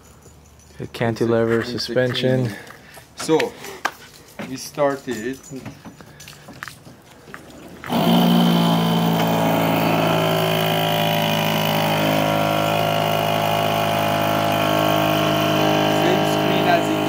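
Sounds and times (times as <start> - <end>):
car engine starting and idling: 7.6 - 17.0.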